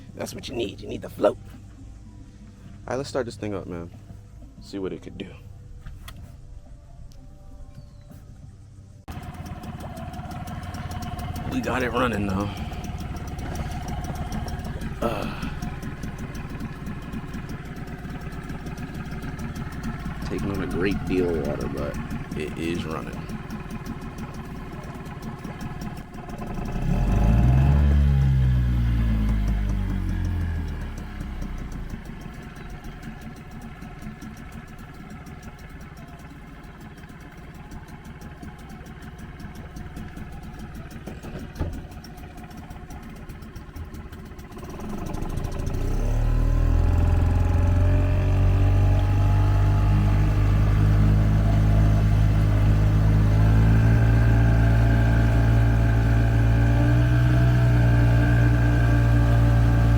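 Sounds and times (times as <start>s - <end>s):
outboard motor running: 0.0s - 6.4s, 9.0s - 59.9s.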